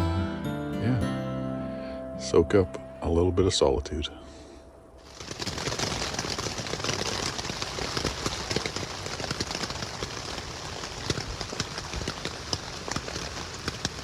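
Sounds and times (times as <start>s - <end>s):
rain on a tent: 5.0s - 14.0s.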